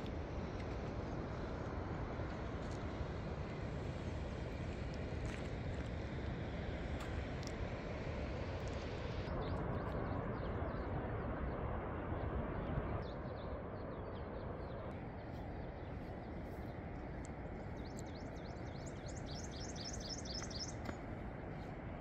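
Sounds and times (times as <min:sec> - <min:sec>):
birds chirping: 0:12.6 - 0:22.0.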